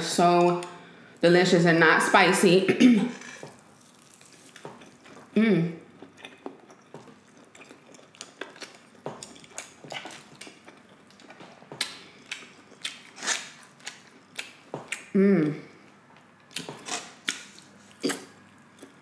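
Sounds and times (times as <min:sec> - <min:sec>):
wet chewing and mouth smacks: 0:03.5 - 0:05.4, 0:06.0 - 0:15.1, 0:16.5 - 0:19.0
person humming: 0:05.4 - 0:05.8, 0:15.2 - 0:15.7.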